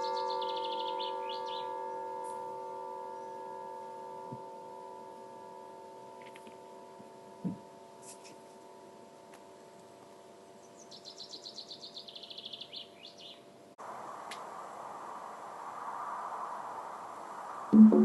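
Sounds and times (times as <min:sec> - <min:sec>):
bird trill: 0:00.0 - 0:06.4, 0:10.6 - 0:13.4
singing bowl ringing: 0:00.0 - 0:09.1
steady rushing sound: 0:13.8 - 0:18.0.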